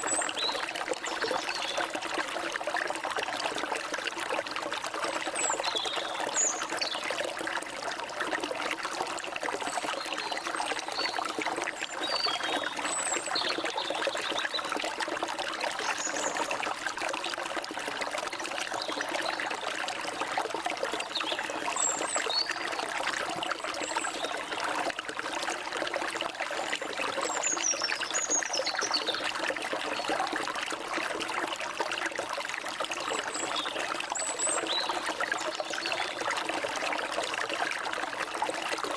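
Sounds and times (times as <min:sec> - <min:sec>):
stream water trickling: 0:00.0 - 0:38.9.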